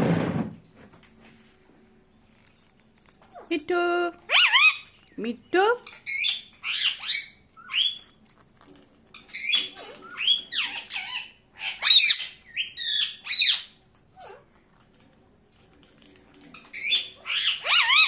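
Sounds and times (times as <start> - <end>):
parakeet squawking and chirping: 4.3 - 5.2, 5.8 - 8.2, 9.1 - 14.6, 16.6 - 18.0.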